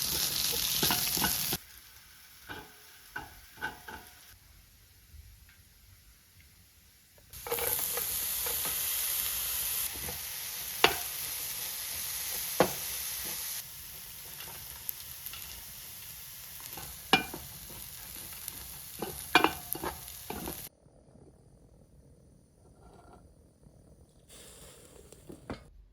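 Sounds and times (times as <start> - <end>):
utensil clacking against pan: 0.0 - 1.6, 2.5 - 4.2, 7.4 - 8.9, 9.9 - 11.2, 12.3 - 13.4, 16.6 - 20.7
food sizzling in a pan: 0.0 - 20.7, 24.3 - 25.6.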